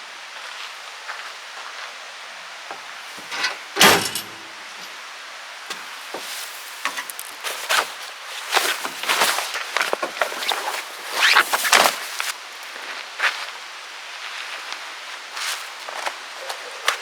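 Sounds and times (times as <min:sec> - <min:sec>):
short rattle: 0:03.2 - 0:05.0
vehicle door thud: 0:03.4 - 0:04.5.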